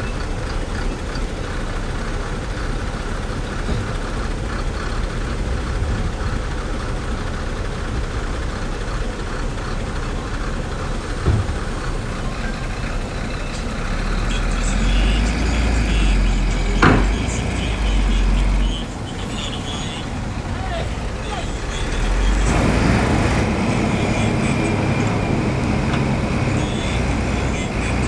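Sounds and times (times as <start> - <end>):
diesel machinery rumbling: 0.0 - 28.0
short knock: 16.8 - 17.4.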